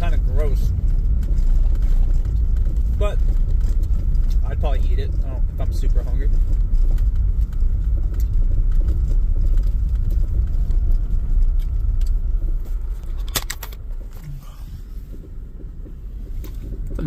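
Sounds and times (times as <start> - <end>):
car driving rumble: 0.0 - 17.0.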